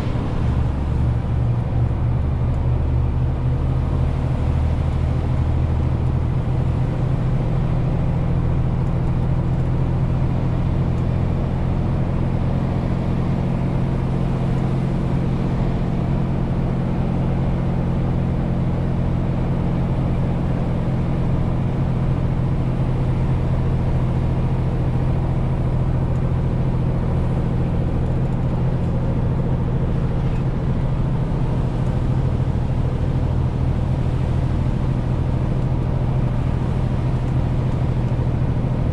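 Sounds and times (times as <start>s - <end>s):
tyre and road noise: 0.0s - 3.0s
truck diesel engine running: 0.0s - 38.9s.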